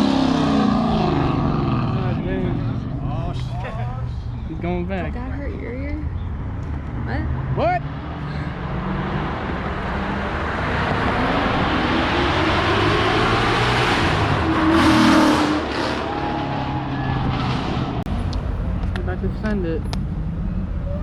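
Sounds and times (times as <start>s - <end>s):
car engine revving: 0.0s - 5.4s, 6.2s - 21.0s.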